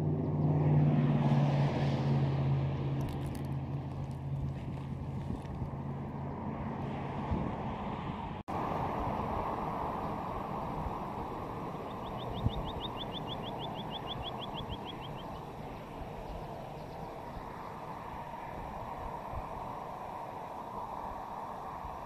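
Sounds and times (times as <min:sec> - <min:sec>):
rushing outdoor background: 0:00.0 - 0:22.0
small bird trilling: 0:11.8 - 0:15.5.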